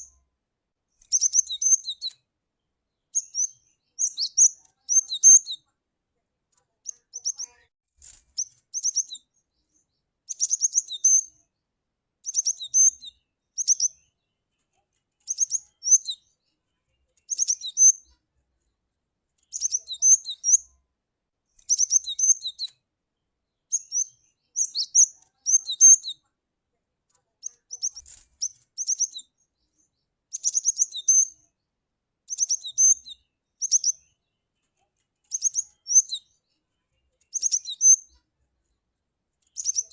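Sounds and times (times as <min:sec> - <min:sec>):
bird quick high chirps: 0:01.0 - 0:02.2, 0:06.8 - 0:09.3, 0:17.3 - 0:18.1, 0:21.6 - 0:22.7, 0:23.7 - 0:26.2, 0:27.4 - 0:29.3, 0:37.3 - 0:38.1, 0:39.6 - 0:39.9.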